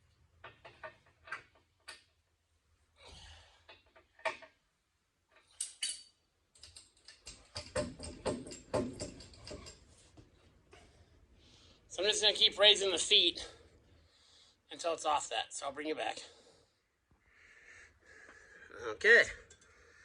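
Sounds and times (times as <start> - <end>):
metallic clicks of hand tools: 5.4 - 9.8.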